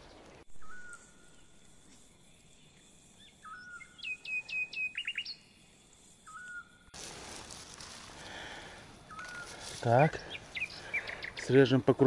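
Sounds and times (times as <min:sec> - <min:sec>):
songbird whistling: 0:00.5 - 0:01.6, 0:03.2 - 0:05.5, 0:06.2 - 0:06.8, 0:09.1 - 0:09.6, 0:10.2 - 0:11.6.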